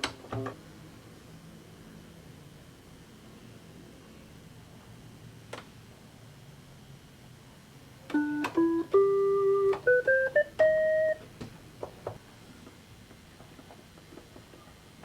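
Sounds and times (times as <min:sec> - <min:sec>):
electronic keyboard rising notes: 0:08.1 - 0:11.2.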